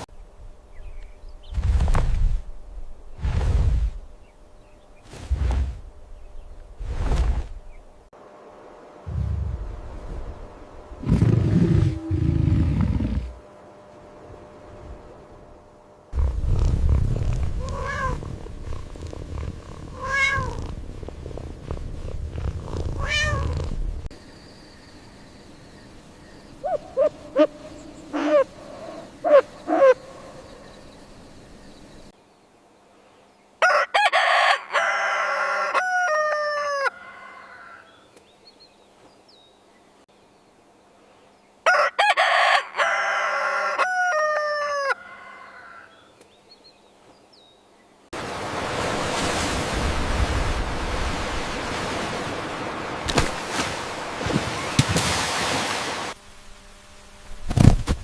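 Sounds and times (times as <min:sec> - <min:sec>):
rooster crowing: 0:33.6 - 0:38.0, 0:41.6 - 0:46.1
short rooster calls: 0:33.6 - 0:38.0, 0:41.6 - 0:46.1.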